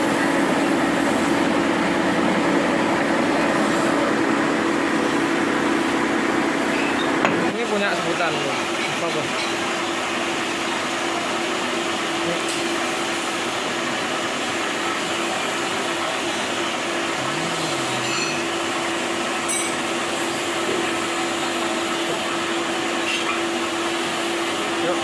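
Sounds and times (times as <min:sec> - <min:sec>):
workshop machine whirring: 0:00.0 - 0:25.0.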